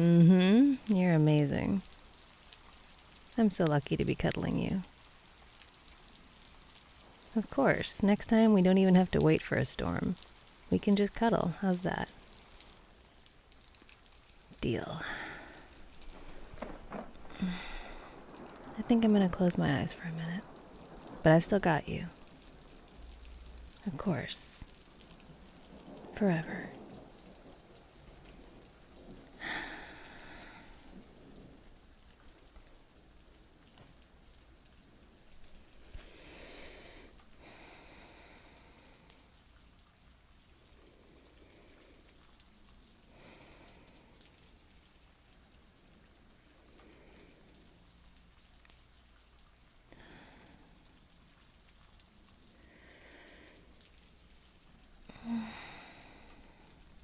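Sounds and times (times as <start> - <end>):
person sighing: 0.0 - 0.8, 17.3 - 18.2, 29.4 - 30.7, 55.1 - 56.6
rain falling: 0.0 - 57.0
soft breaths: 14.9 - 18.7, 28.4 - 32.5, 35.4 - 39.5, 40.6 - 44.6, 49.8 - 51.6, 52.4 - 57.0.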